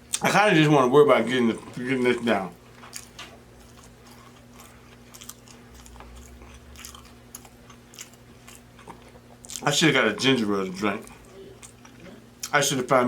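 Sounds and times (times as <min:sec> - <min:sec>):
faint steady hum: 0:00.0 - 0:13.0
person chewing food: 0:01.6 - 0:09.8, 0:10.8 - 0:12.6.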